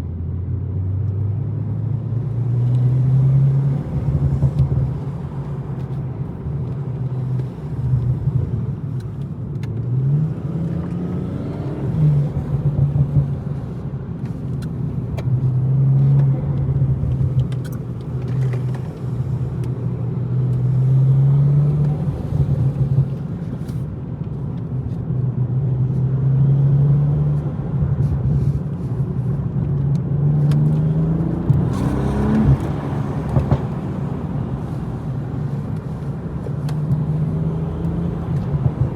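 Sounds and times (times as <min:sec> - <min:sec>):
car engine running: 0:27.6 - 0:38.9.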